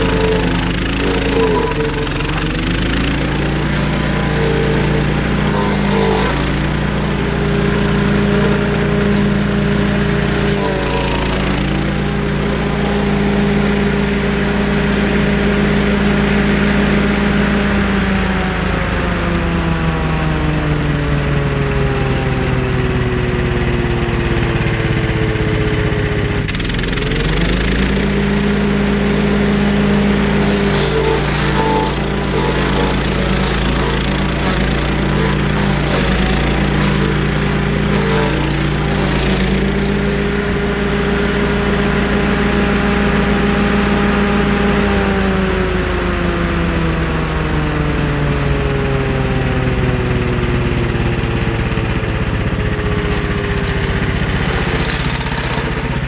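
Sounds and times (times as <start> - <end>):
stump grinder engine labouring: 0.0 - 56.0.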